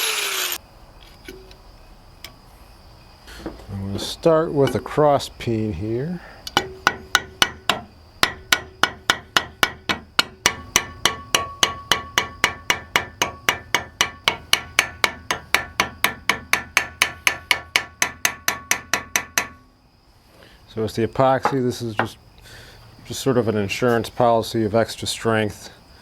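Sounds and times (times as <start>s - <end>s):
hammer striking steel: 6.6s - 19.6s.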